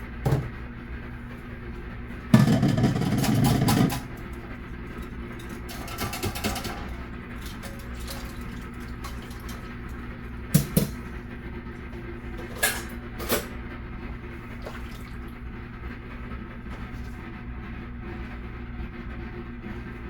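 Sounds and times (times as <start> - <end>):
steady low hum: 0.0 - 20.0
kitchenware knocking and clinking: 2.4 - 4.2, 5.4 - 7.0, 10.6 - 11.0.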